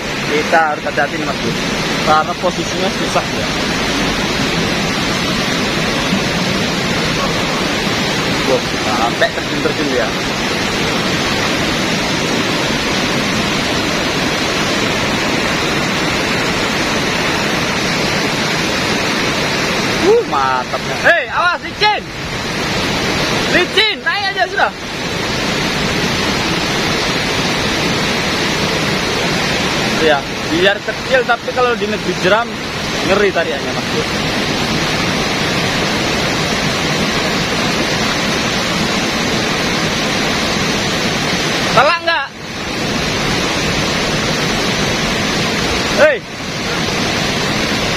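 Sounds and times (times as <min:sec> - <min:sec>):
river rapids rushing: 0:00.0 - 0:47.9.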